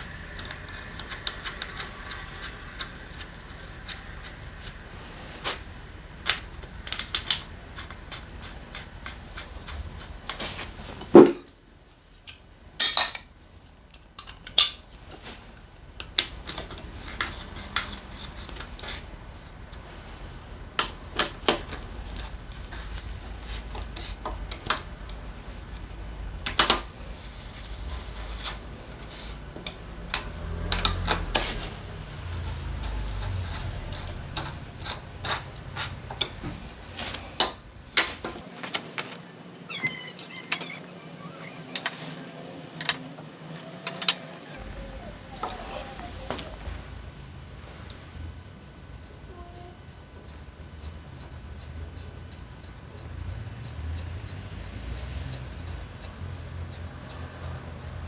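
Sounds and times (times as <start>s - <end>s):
metal tools clinking and knocking: 12.2s - 13.3s, 14.0s - 14.9s, 41.4s - 44.4s.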